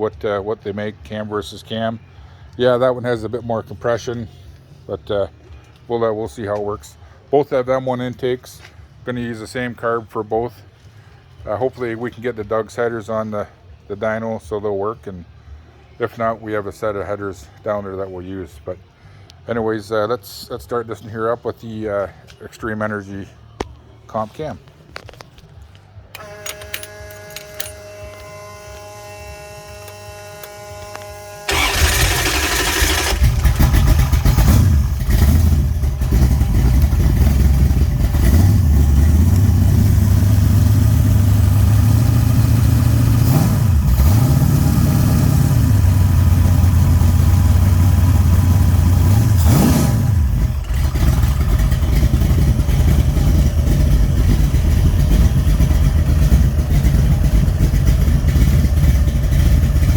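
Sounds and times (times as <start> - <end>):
car engine idling and revving: 28.3 - 59.9
starter cranking: 29.8 - 38.4.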